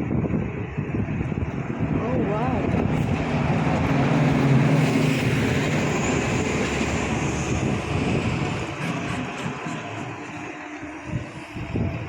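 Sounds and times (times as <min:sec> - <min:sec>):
vehicle passing by: 0:01.2 - 0:09.4.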